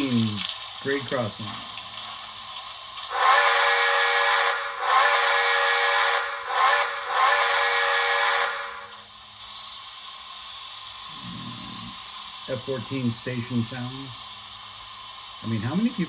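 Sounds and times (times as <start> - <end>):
chime steam whistle blasts: 3.1 - 8.9.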